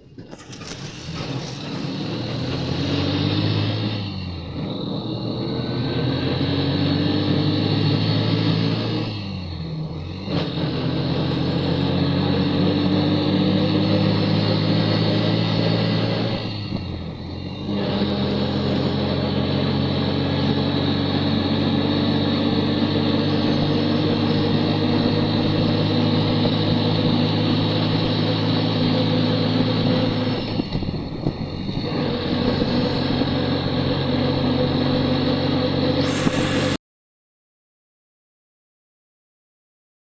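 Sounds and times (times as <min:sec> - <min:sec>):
vehicle engine running: 0:00.0 - 0:36.8.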